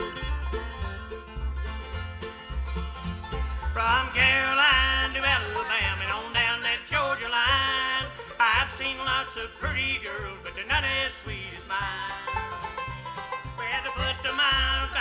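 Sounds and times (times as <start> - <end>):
banjo: 0.0 - 15.0
bass thumping: 0.0 - 15.0
bluegrass band playing: 0.0 - 15.0.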